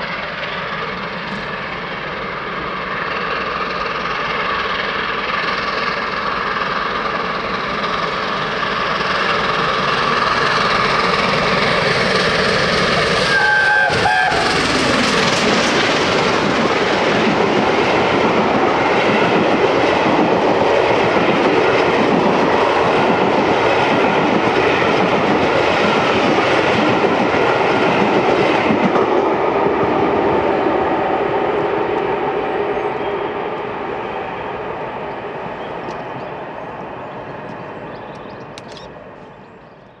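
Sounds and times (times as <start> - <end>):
train wheels clattering: 0.0 - 29.2
loud rush of passing train: 0.0 - 40.0.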